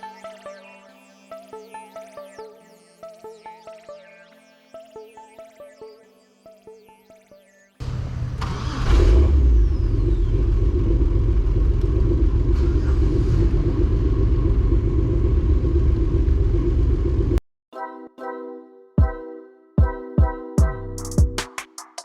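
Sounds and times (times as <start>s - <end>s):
car engine rumbling: 7.8s - 17.4s.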